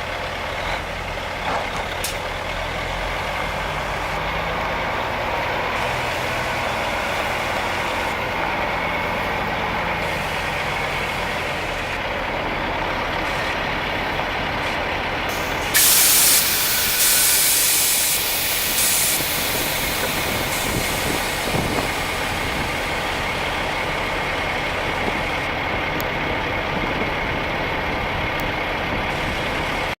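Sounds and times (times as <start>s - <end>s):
diesel truck engine idling: 0.0s - 30.0s
air brake hiss: 15.3s - 22.3s.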